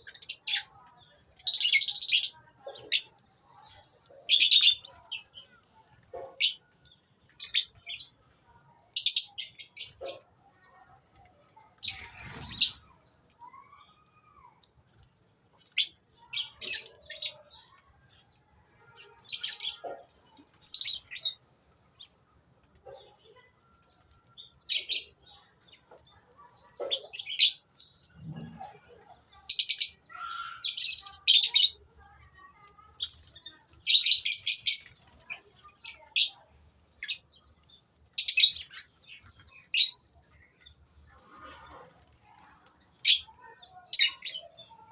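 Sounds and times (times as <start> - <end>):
lovebirds chirping: 0.0 - 13.8, 14.9 - 22.2, 32.5 - 44.9.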